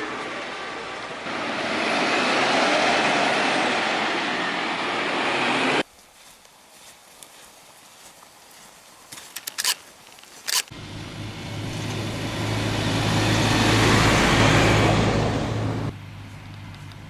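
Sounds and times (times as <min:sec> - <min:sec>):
vehicle passing with tyre noise: 0:00.0 - 0:05.9, 0:10.7 - 0:17.0
sharp clicks: 0:09.3 - 0:09.8, 0:10.4 - 0:10.7.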